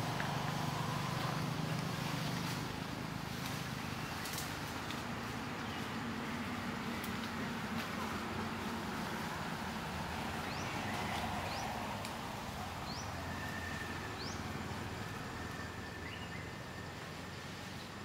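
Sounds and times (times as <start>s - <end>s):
bird chirping: 15.6s - 17.5s.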